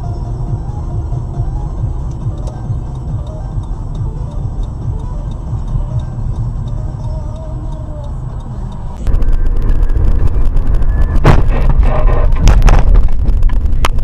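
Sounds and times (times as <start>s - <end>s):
car engine and road noise: 0.0s - 14.0s
crackling: 8.9s - 14.0s
sharp knocks: 11.1s - 13.2s.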